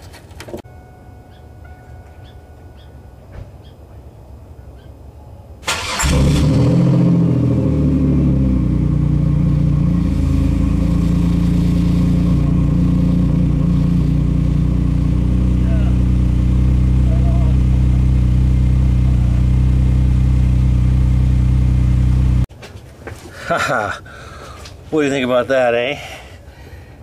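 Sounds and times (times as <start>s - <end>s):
engine starter cranking: 5.6s - 6.7s
car engine revving and idling: 5.8s - 22.5s.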